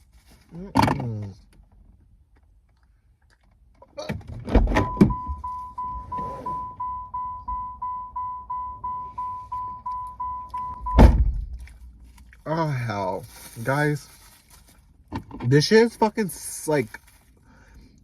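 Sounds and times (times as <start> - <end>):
car warning chime beeping: 4.8 - 11.2.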